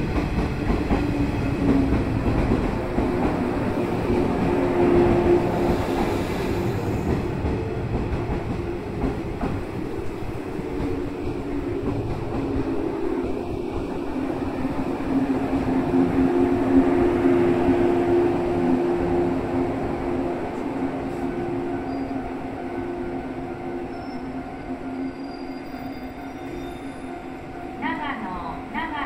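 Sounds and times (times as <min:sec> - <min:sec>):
train braking to a stop: 0:04.8 - 0:07.6, 0:21.0 - 0:28.5.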